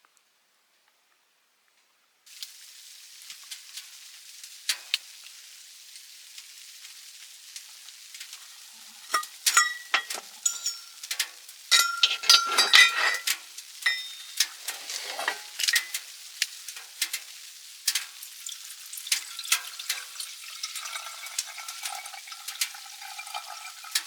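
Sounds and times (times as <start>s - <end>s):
food sizzling in a pan: 2.3s - 24.0s
utensil clinking against pan: 9.1s - 16.0s.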